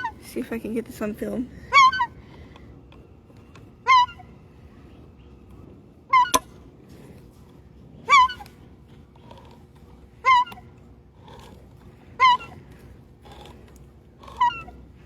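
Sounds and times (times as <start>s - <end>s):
gull honking calls: 3.8s - 4.4s.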